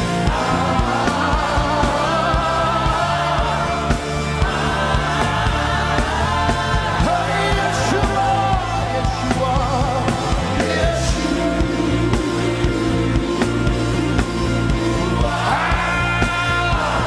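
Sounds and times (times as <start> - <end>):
band with bass and beat: 0.0 - 17.0
voices singing: 0.0 - 17.0.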